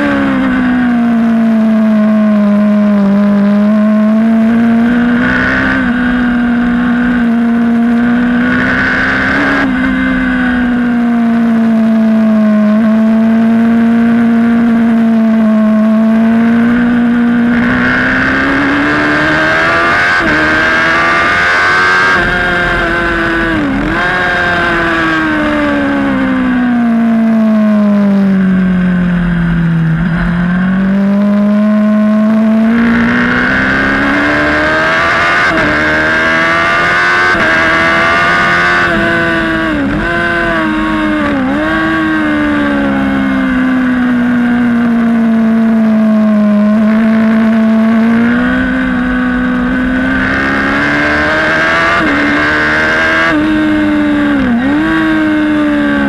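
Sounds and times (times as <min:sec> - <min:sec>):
racing motorcycle engine: 0:00.0 - 0:56.0.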